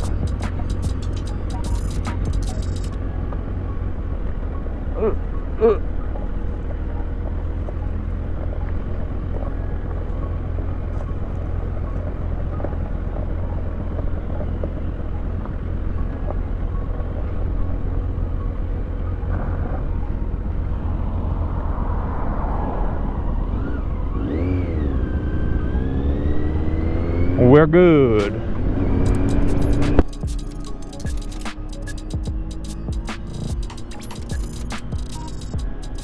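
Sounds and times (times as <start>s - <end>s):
motorcycle engine at low revs: 23.3s - 30.4s.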